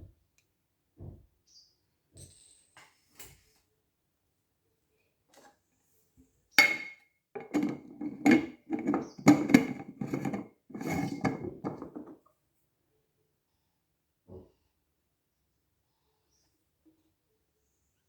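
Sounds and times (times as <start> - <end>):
dishes and utensils clattering: 6.6 - 12.2.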